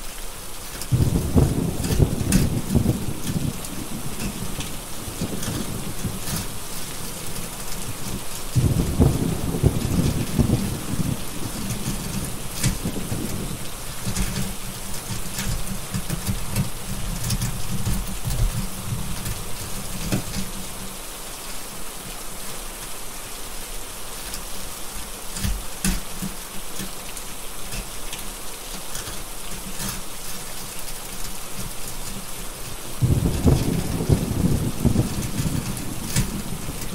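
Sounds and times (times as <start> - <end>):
wood fire crackling: 0.0 - 23.0, 23.6 - 36.9
steady rain: 0.0 - 36.9
deep thunder rumble: 0.9 - 7.4, 8.0 - 15.2, 32.9 - 36.9.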